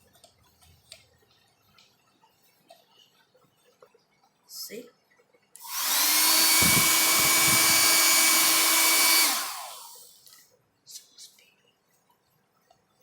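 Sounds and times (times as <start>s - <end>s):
hair dryer blowing with fan whine: 5.6s - 10.1s.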